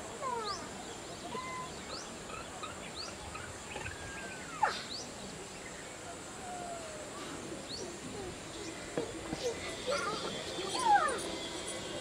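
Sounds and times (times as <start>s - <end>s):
birds chirping: 0.2s - 12.0s
whistled bird notes: 8.5s - 12.0s.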